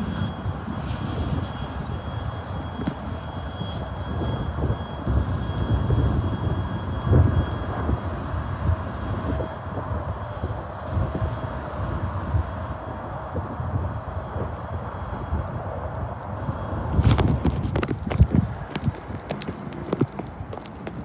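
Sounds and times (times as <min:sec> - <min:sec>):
train wheels rumbling on track: 0:16.2 - 0:21.0.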